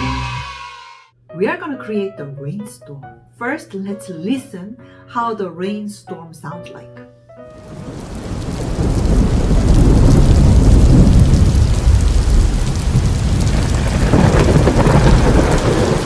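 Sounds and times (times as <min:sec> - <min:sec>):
heavy rain: 0:07.6 - 0:16.0
thunder rumbling: 0:07.6 - 0:16.0.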